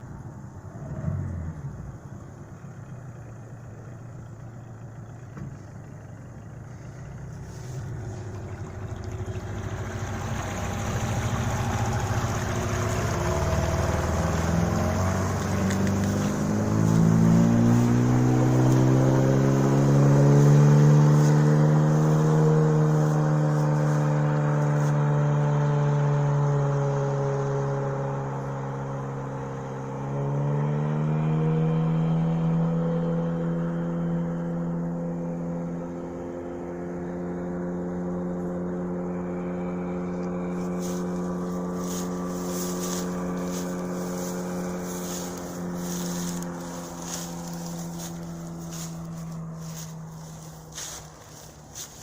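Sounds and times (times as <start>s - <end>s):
outboard motor revving: 3.2s - 52.0s.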